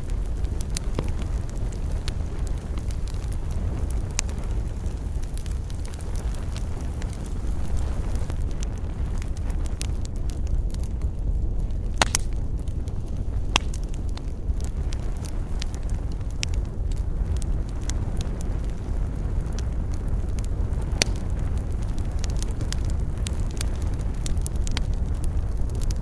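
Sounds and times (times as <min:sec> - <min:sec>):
low rumble: 0:00.0 - 0:26.0
wood fire crackling and popping: 0:00.0 - 0:26.0.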